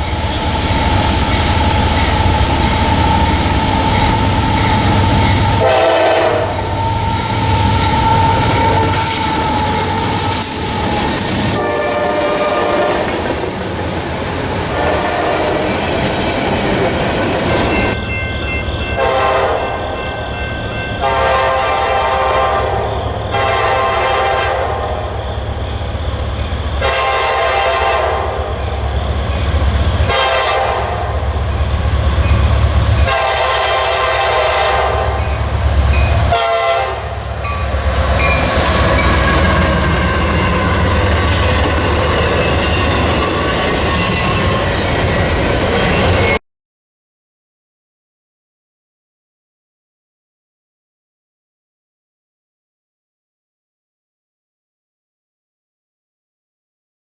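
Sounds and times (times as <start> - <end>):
passing train rumble: 0.0 - 46.4
locomotive air horn blasts: 3.8 - 13.2, 14.7 - 15.7, 19.0 - 20.1, 21.0 - 25.4, 26.8 - 28.8, 30.0 - 31.3, 33.0 - 35.4, 36.2 - 37.2.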